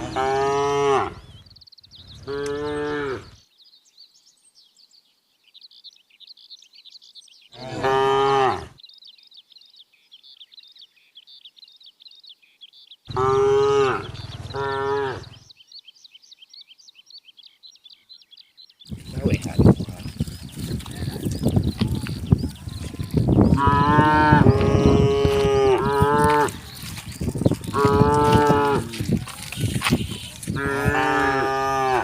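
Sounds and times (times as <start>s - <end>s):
cattle mooing: 7.6s - 8.7s, 13.1s - 15.3s, 22.9s - 26.6s, 27.6s - 29.1s, 30.5s - 32.0s.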